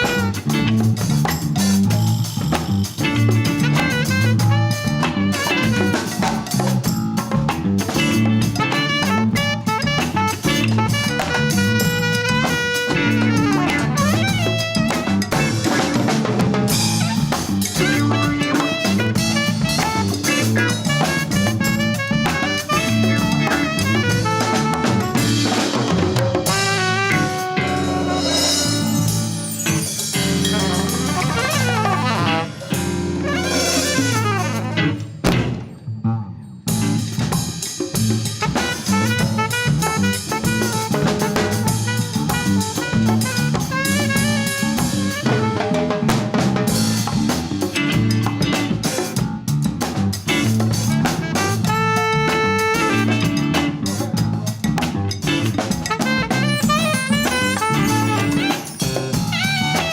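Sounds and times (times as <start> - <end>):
live latin band playing: 0.0 - 35.8, 36.7 - 59.9
drum kit rhythm: 0.0 - 35.9, 36.7 - 59.9
bass line: 0.0 - 59.9
melodic line of held notes: 26.5 - 35.2, 56.1 - 59.9
cymbals ringing: 27.6 - 35.9.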